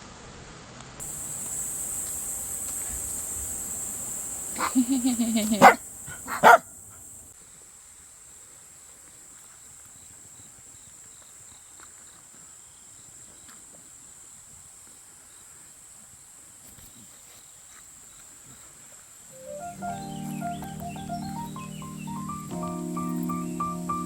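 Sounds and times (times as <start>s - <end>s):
faint chirps: 1.0s - 7.3s, 16.6s - 24.0s
insects trilling: 1.0s - 24.0s.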